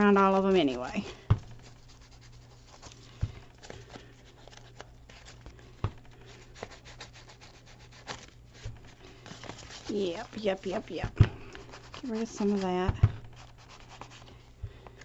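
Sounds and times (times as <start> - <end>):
ink pad rubbing on paper: 9.8 - 14.2.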